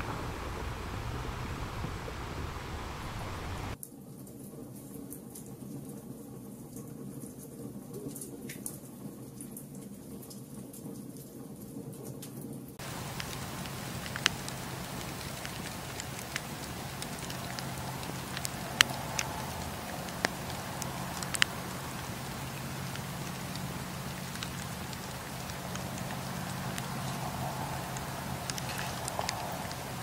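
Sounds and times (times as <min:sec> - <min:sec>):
campfire crackling and popping: 0:12.8 - 0:30.0.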